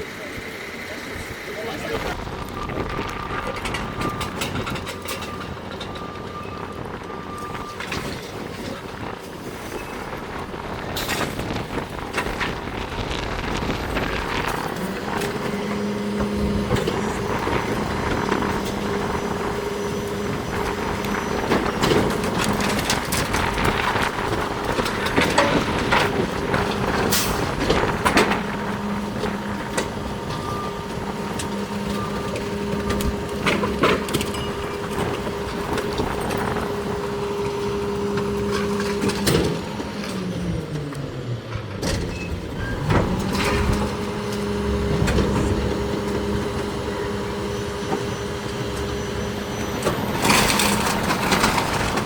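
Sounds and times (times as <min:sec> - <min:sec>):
garbage truck engine: 0:00.0 - 0:52.0.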